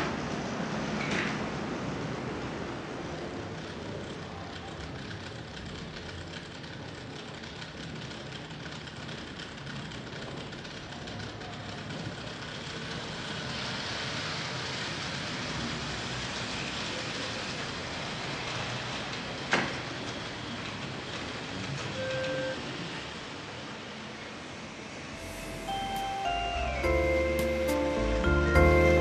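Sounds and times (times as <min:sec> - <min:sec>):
model train whirring and rattling: 0:00.0 - 0:21.9.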